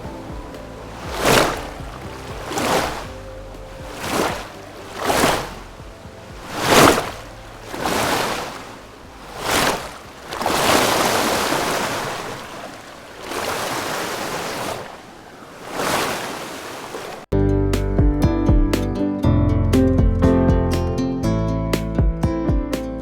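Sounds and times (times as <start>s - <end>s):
strummed acoustic guitar music: 17.4s - 23.0s.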